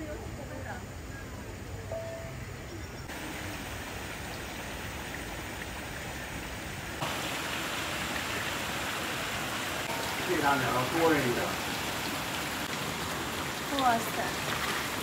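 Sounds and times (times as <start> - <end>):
water rushing: 3.1 - 15.0.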